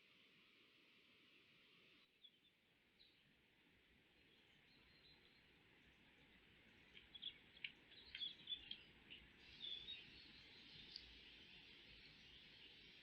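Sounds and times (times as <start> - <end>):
steady faint hiss: 2.7 - 13.0
faint high bird chirps: 7.0 - 11.3.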